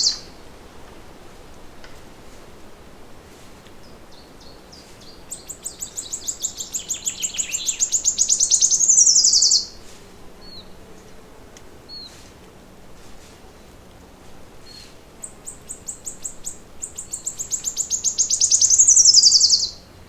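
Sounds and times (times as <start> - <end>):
faint bird chirps: 0.0 - 0.3, 3.8 - 9.8, 14.6 - 19.8
songbird trilling: 0.0 - 0.3, 3.8 - 9.8, 14.6 - 19.8.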